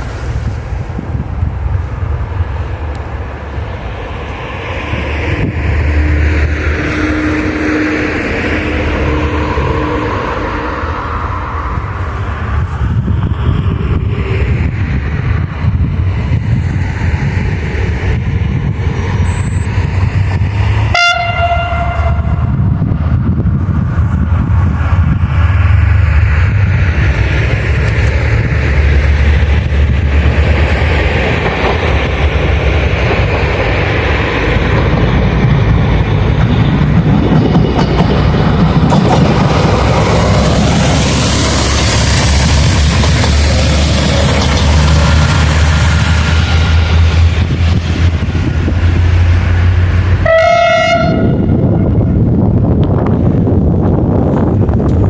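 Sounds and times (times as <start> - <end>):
train rumbling: 0.0 - 55.0
train horn toot: 5.9 - 11.0, 20.9 - 22.6, 50.2 - 52.0.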